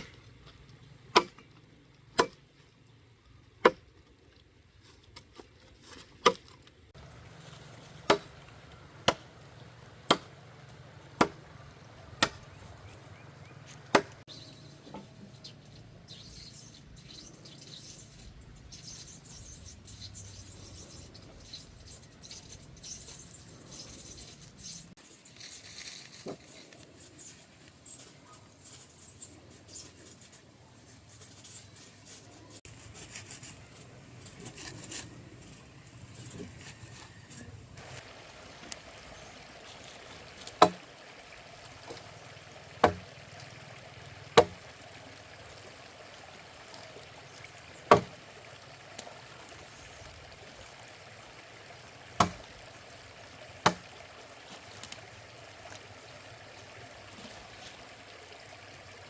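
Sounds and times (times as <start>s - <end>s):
blade chopping wood: 1.1s - 1.5s, 2.2s - 2.4s, 8.0s - 8.4s, 9.0s - 9.3s, 10.0s - 10.4s, 11.2s - 11.4s, 12.2s - 12.6s, 13.7s - 14.2s, 40.5s - 40.8s, 42.8s - 43.1s, 44.4s - 44.6s, 47.9s - 48.2s, 52.2s - 52.5s, 53.6s - 53.9s.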